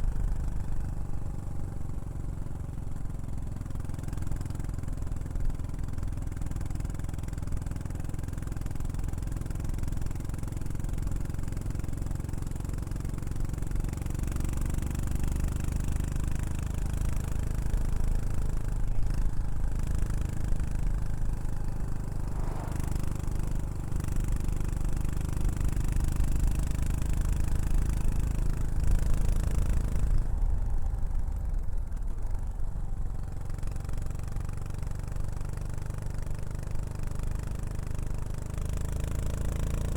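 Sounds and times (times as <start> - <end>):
motorcycle engine exhaust: 19.0 - 26.4.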